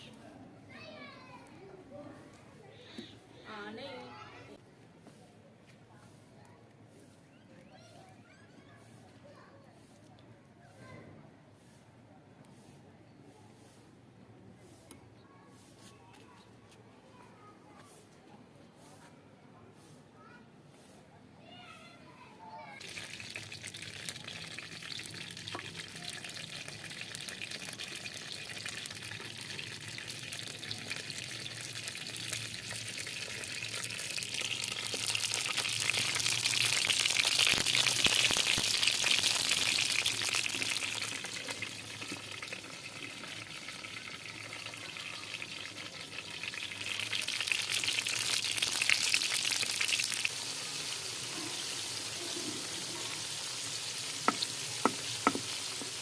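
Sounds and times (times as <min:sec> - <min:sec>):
food sizzling in hot oil: 0:22.7 - 0:56.0.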